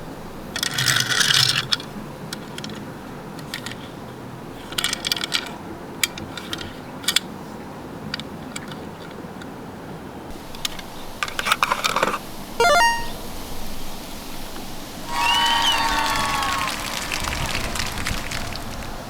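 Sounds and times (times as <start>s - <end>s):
toy vehicles rattling scrape: 0.5s - 4.0s, 4.6s - 7.3s
plastic and metal toy clicks: 0.6s - 2.8s, 4.7s - 7.3s.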